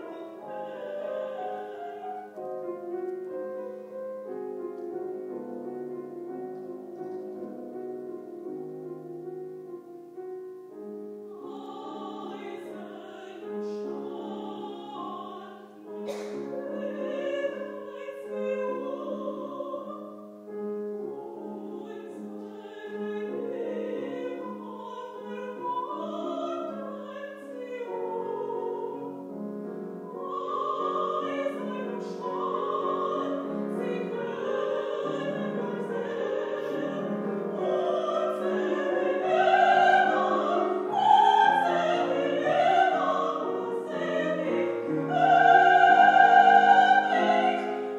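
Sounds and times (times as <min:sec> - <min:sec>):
piano accompaniment: 0:00.0 - 0:47.9
woman singing operatically: 0:11.3 - 0:20.2, 0:21.0 - 0:29.1, 0:30.1 - 0:47.8.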